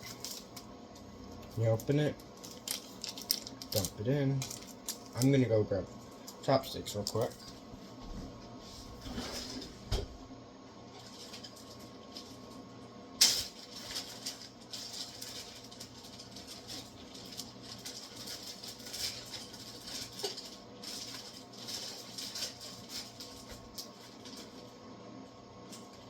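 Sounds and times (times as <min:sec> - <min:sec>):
water crackling as it heats: 0:10.9 - 0:24.7.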